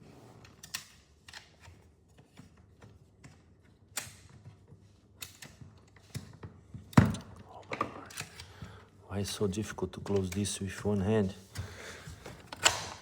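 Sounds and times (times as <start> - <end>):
pin nailer loading clicks: 12.5 - 13.0.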